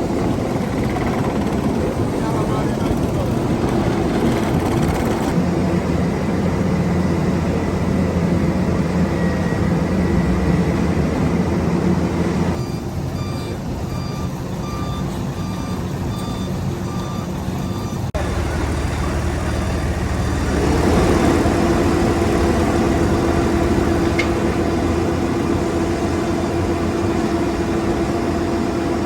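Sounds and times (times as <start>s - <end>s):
diesel engine drone: 0.0s - 29.0s
reversing alarm beeping: 12.1s - 28.4s.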